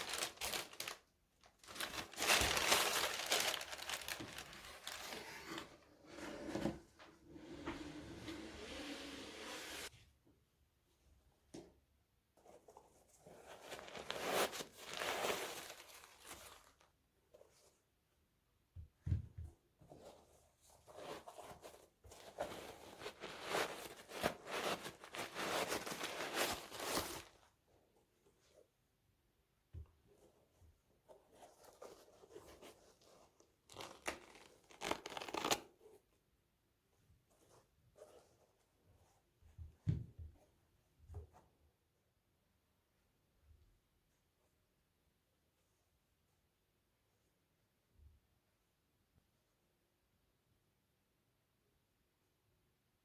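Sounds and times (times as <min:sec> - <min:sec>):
packaging rustling and scraping: 0:00.0 - 0:01.0, 0:01.6 - 0:05.7, 0:20.9 - 0:27.4.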